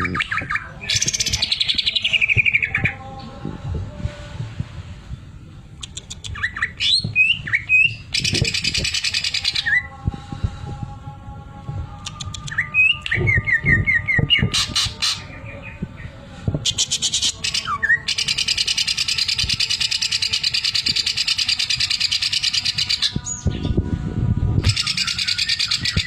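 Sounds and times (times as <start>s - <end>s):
bird chirping and whistling: 5.8s - 9.9s, 12.1s - 15.8s, 16.6s - 23.7s, 24.6s - 26.0s.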